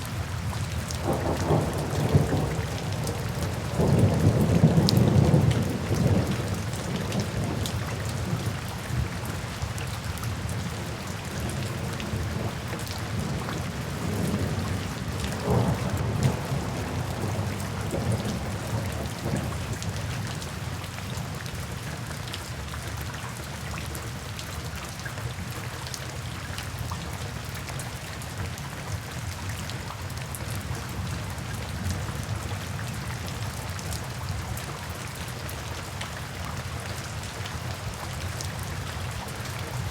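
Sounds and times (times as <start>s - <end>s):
steady rainfall: 0.0s - 39.9s
thunder rumbling: 1.0s - 9.1s, 13.2s - 19.7s.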